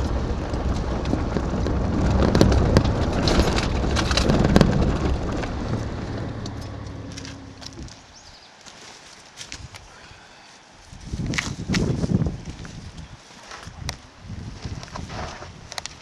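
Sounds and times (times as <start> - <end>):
rattles and knocks: 0.0 - 8.0
vehicle engine driving: 0.0 - 8.2
rough road noise: 0.0 - 16.0.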